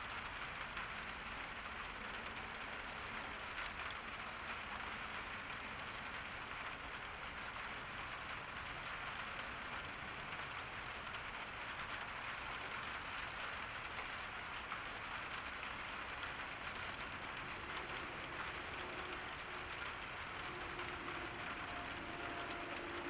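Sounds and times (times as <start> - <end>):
rain falling on a garden: 0.0 - 23.0
high-pitched chirps: 17.0 - 19.7, 21.6 - 22.4.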